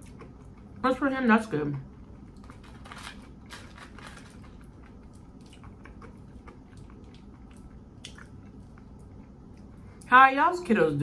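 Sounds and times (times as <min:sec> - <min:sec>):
person chewing with mouth closed: 0:04.6 - 0:10.1.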